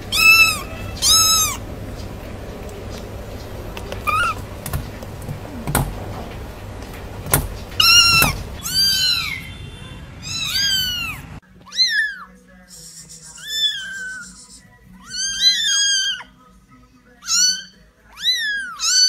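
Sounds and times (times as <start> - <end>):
kittens mewing: 0.0 - 6.5, 7.3 - 9.6, 10.2 - 12.4, 13.1 - 16.4, 17.2 - 19.0
sharp knocks: 4.4 - 8.6.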